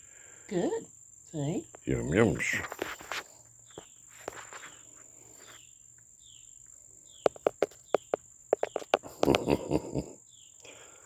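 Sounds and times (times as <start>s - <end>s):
bird beak pecking at camera: 8.6s - 9.6s.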